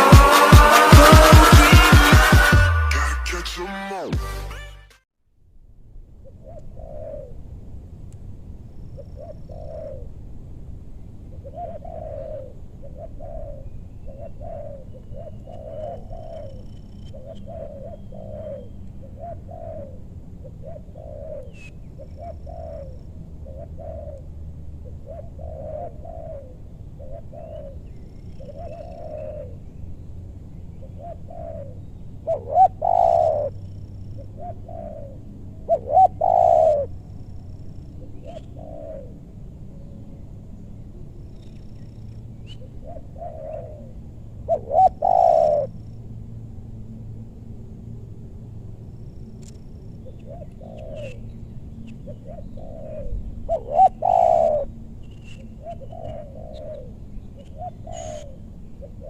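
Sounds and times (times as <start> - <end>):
doves cooing: 6.3 - 7.4, 9.0 - 10.1, 11.3 - 29.6, 30.8 - 37.0, 38.0 - 39.2, 42.5 - 45.8, 50.0 - 51.3, 52.0 - 59.0.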